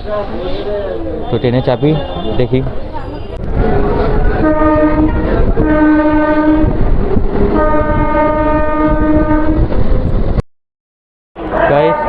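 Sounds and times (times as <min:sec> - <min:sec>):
train rumbling: 0:00.0 - 0:10.4, 0:11.4 - 0:12.0
train horn blasts: 0:04.4 - 0:06.9, 0:07.5 - 0:09.7, 0:11.6 - 0:12.0.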